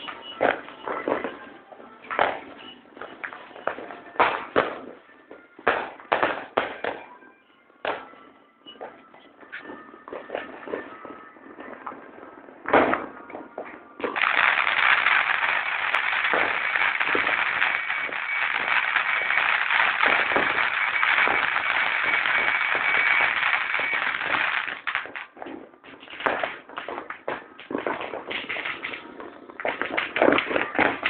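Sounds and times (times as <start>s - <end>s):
fireworks crackling and popping: 0.0s - 7.2s, 7.8s - 31.0s
faint firework whistle: 0.0s - 12.3s, 12.9s - 25.2s
firework bang: 5.7s - 7.0s, 9.6s - 31.0s.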